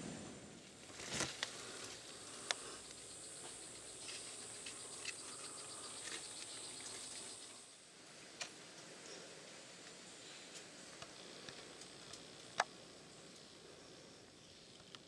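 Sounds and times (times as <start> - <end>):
high-pitched insect drone: 1.6 - 7.8.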